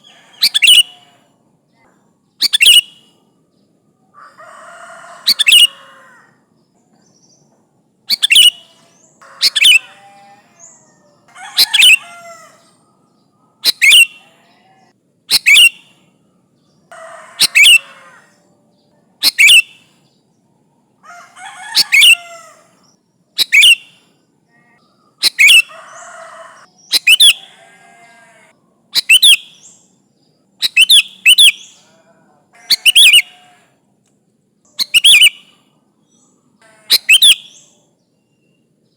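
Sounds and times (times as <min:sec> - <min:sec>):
bird sharp call phrases: 0:00.0 - 0:01.2, 0:02.4 - 0:03.2, 0:04.8 - 0:06.2, 0:08.1 - 0:12.8, 0:13.6 - 0:14.4, 0:15.3 - 0:16.0, 0:17.0 - 0:18.4, 0:19.2 - 0:20.0, 0:21.4 - 0:24.2, 0:24.8 - 0:29.8, 0:30.6 - 0:32.0, 0:32.6 - 0:33.6, 0:34.7 - 0:35.7, 0:36.6 - 0:37.9
soft low bird chatter: 0:00.0 - 0:38.9.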